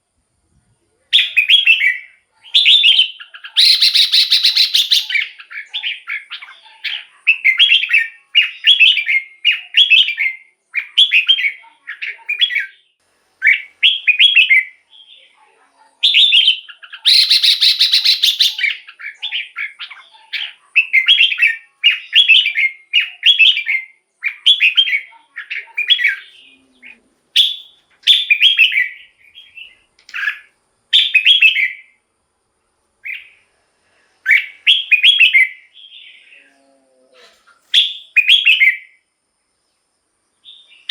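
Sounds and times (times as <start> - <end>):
bulbul singing warbled phrases: 1.1 - 15.4, 16.0 - 32.0.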